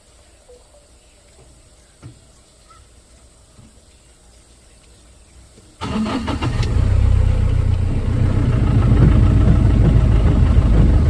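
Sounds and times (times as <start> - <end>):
vehicle engine cranking and starting: 5.8 - 11.0.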